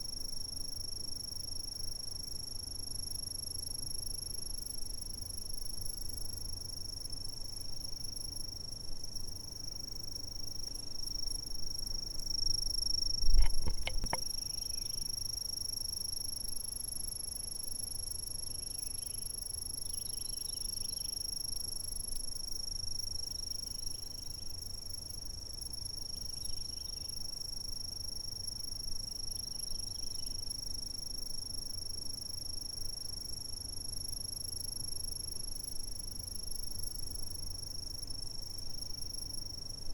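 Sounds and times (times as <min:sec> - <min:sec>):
faint insect chirps: 0:00.0 - 0:39.9
insects trilling: 0:00.0 - 0:39.9
low thump with clicks: 0:13.2 - 0:14.3.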